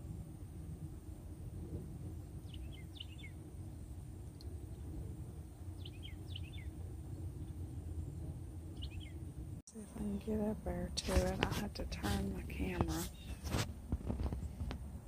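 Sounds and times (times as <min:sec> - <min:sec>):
steady low rumble: 0:00.0 - 0:15.0
bird chirping: 0:02.4 - 0:03.8, 0:05.7 - 0:06.8, 0:08.8 - 0:09.2, 0:13.1 - 0:13.4.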